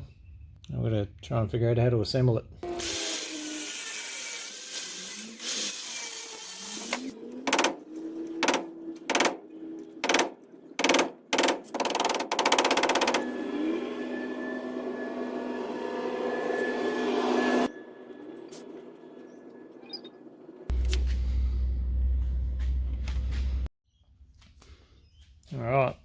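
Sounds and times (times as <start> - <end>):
power tool buzzing: 2.6 - 17.8.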